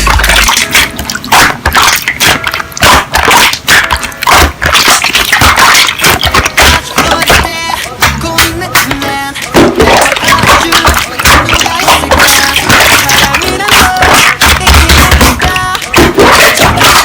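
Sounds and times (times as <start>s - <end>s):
slime squishing by hand: 0.0s - 17.0s.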